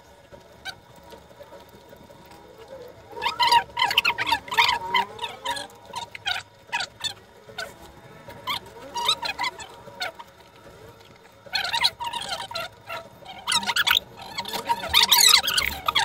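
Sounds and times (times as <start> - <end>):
birds chirping and squawking: 3.2 - 7.7, 8.4 - 10.4, 11.5 - 16.0.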